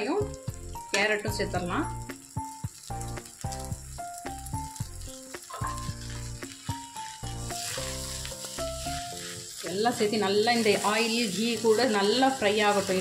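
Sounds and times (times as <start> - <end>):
background music: 0.0 - 13.0
food sizzling in oil: 0.0 - 13.0
spatula stirring: 5.0 - 13.0.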